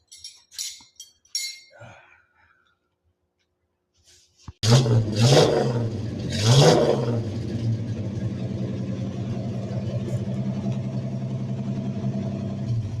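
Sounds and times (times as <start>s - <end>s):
truck engine idling: 7.2s - 13.0s.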